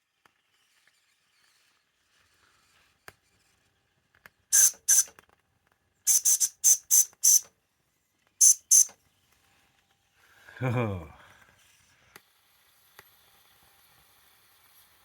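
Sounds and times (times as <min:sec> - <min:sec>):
toy steam locomotive puffing: 0:04.5 - 0:05.1, 0:06.1 - 0:07.5, 0:08.4 - 0:08.9.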